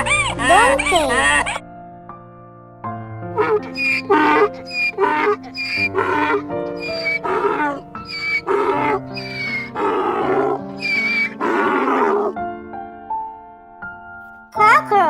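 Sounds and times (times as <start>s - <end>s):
donkey braying: 0.0s - 1.6s, 3.4s - 12.4s
light background music: 0.0s - 15.0s.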